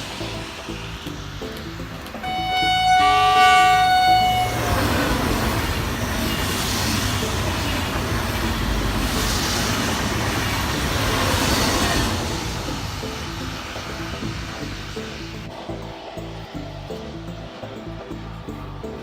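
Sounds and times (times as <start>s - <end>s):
passing train rolling: 0.0s - 19.0s
train horn: 2.2s - 7.3s.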